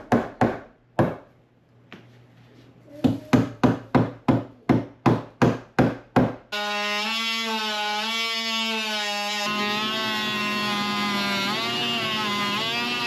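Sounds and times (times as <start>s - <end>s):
hammer beating wood: 0.0s - 1.3s, 3.0s - 6.5s.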